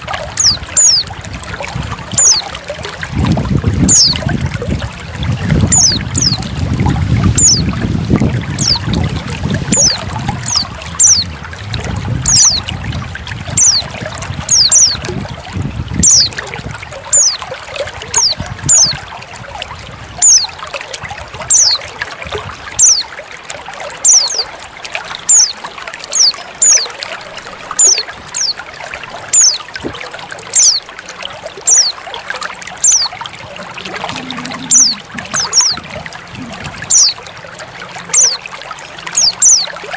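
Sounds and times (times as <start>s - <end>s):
water trickling and splashing: 0.0s - 39.9s
bird giving high falling calls: 32.8s - 37.2s.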